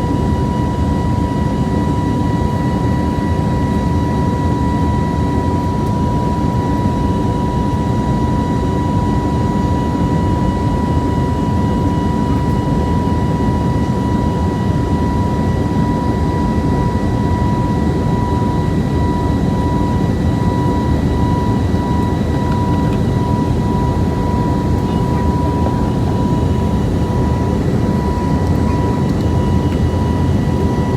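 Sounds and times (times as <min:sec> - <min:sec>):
jet cabin engine rush: 0:00.0 - 0:30.9
steady high whine: 0:16.3 - 0:30.9.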